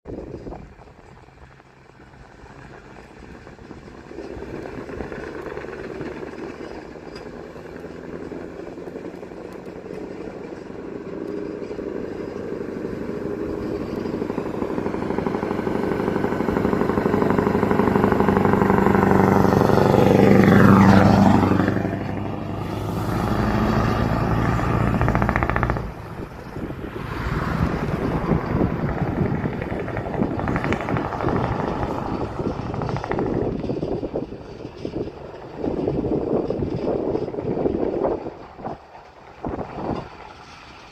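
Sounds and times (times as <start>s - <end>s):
road noise: 0.0s - 40.9s
rough engine: 0.0s - 40.9s
truck engine passing: 0.2s - 40.9s.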